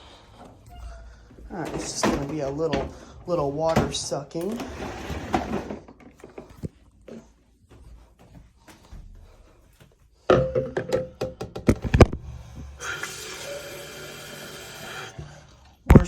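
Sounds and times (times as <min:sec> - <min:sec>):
objects being handled and set down: 0:01.5 - 0:07.3.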